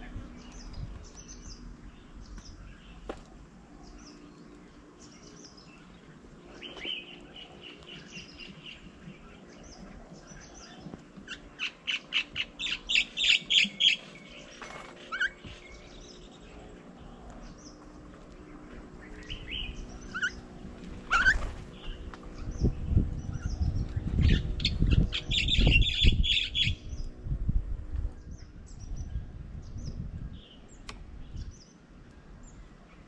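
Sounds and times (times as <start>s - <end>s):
bird chirps: 3.8s - 17.8s
bird trilling: 11.2s - 14.1s, 19.2s - 22.0s.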